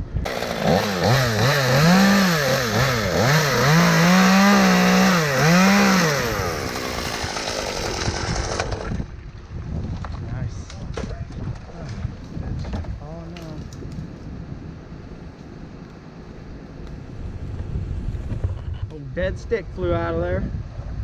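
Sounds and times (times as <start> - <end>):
chainsaw revving: 0.2 - 9.1.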